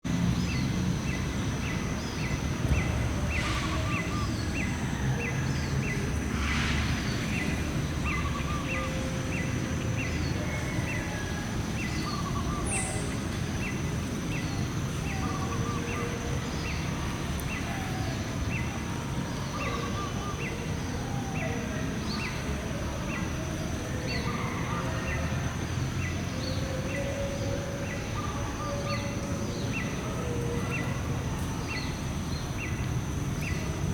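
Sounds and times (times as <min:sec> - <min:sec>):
low rumbling noise: 0:00.1 - 0:10.5.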